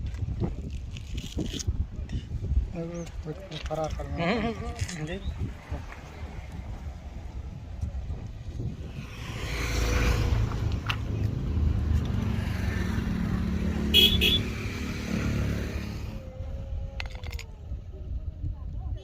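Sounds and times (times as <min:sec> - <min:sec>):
vehicle passing: 0:08.5 - 0:16.5.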